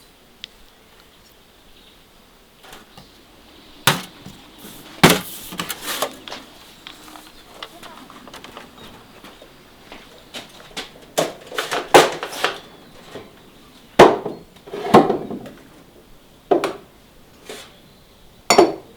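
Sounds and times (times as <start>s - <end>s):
dishes and utensils clattering: 3.9s - 6.4s, 10.3s - 13.4s, 18.5s - 18.9s.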